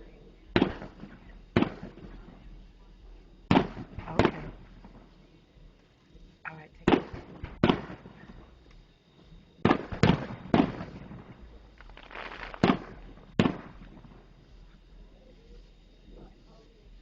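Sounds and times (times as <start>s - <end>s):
fireworks shells bursting: 0.5s - 2.4s, 9.6s - 14.8s.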